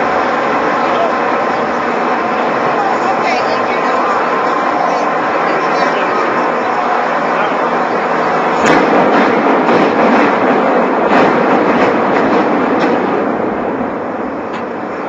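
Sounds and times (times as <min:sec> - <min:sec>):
rumbling roar of falling rubble: 0:06.2 - 0:14.9
sharp cracks: 0:08.5 - 0:13.4.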